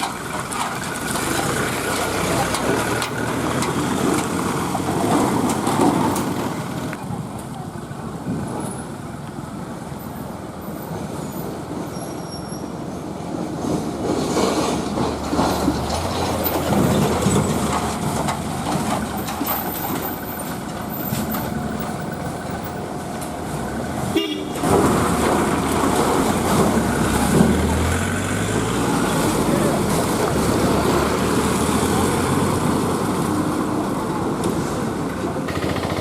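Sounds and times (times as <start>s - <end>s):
road and water noise: 0.0s - 36.0s
truck engines revving: 0.0s - 36.0s
horn toot: 24.1s - 24.7s.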